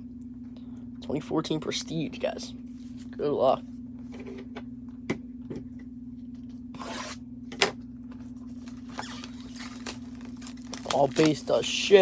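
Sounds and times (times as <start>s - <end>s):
steady low hum: 0.0s - 12.0s
cardboard and plastic tearing: 8.6s - 12.0s.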